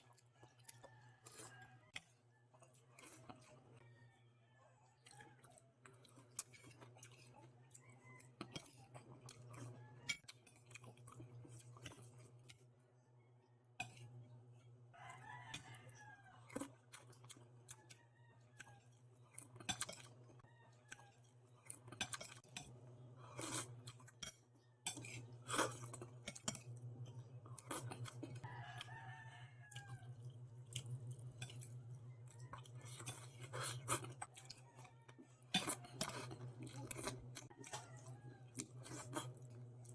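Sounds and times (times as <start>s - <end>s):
chewing: 0.0s - 4.0s, 4.6s - 12.7s, 13.8s - 39.9s
rooster crowing: 0.4s - 2.0s, 3.8s - 5.7s, 7.6s - 10.2s, 14.9s - 16.7s, 17.7s - 19.0s, 20.4s - 21.2s, 28.2s - 30.4s, 31.4s - 39.2s.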